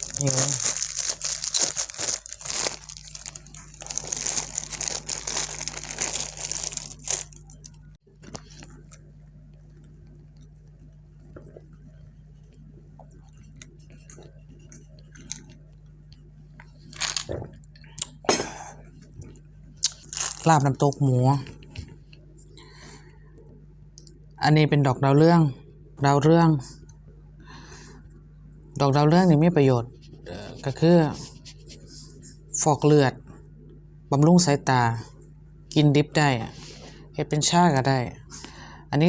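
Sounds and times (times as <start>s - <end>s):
plastic bags rustling: 0.0s - 9.0s, 16.8s - 17.3s, 19.8s - 20.6s
steady low hum: 0.0s - 39.0s.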